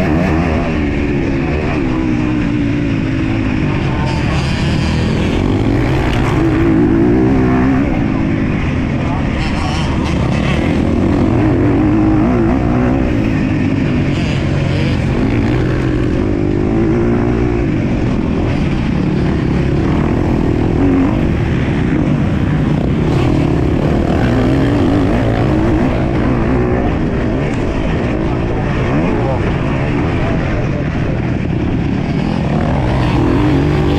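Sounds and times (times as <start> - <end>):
dirt bike engine revving: 0.0 - 30.6, 31.4 - 33.9.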